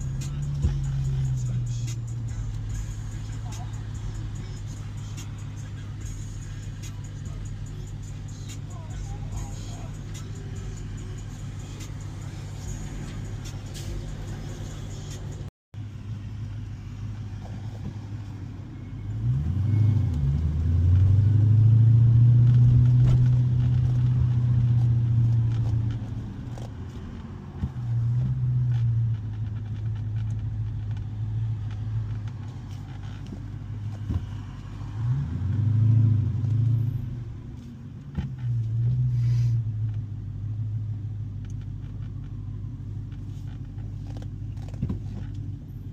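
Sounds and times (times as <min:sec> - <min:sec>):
car engine accelerating hard: 0:00.0 - 0:45.9.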